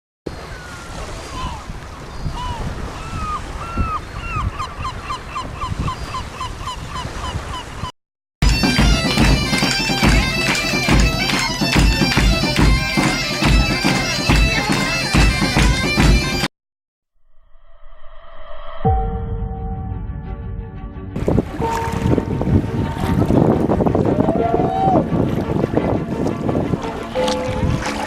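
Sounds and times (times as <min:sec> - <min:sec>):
bird gliding calls: 0:00.3 - 0:16.4
music with strong beat: 0:08.4 - 0:16.5
water rushing: 0:08.4 - 0:16.5, 0:21.2 - 0:28.0.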